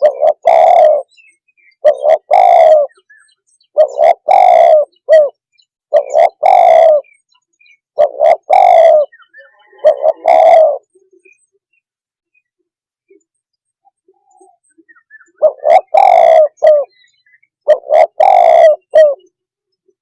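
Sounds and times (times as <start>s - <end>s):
dove cooing: 0.0s - 11.4s, 14.0s - 19.4s.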